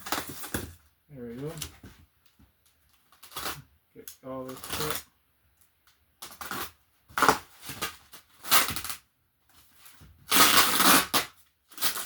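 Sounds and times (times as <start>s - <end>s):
packing tape being cut: 3.2s - 3.6s, 6.3s - 9.0s, 10.3s - 12.0s.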